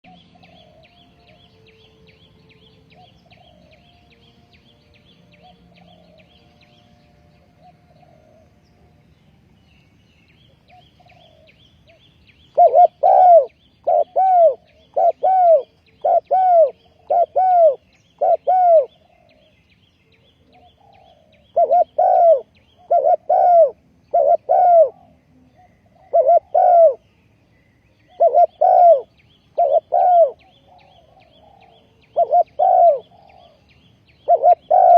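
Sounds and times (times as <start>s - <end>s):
dove cooing: 0.0s - 1.5s, 2.9s - 4.0s, 5.3s - 6.5s, 7.3s - 8.8s, 10.5s - 19.6s, 20.2s - 27.0s, 28.0s - 34.9s
small birds chirping: 0.0s - 34.9s.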